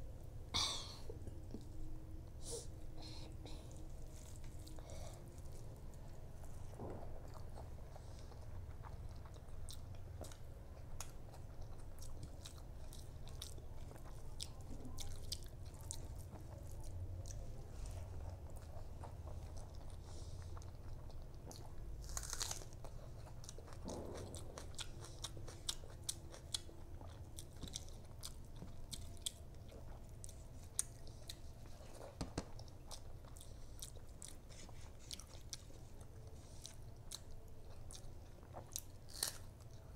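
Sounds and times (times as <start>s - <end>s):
mouth chewing: 2.5s - 39.9s
crunchy bite into onion: 22.0s - 22.8s, 39.1s - 39.5s.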